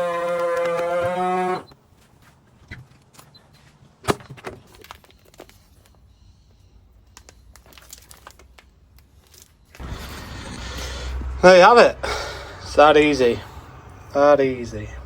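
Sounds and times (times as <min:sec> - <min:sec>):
sharp clicks: 0:00.1 - 0:01.7
plastic bags crinkling: 0:04.6 - 0:06.0, 0:07.0 - 0:10.6.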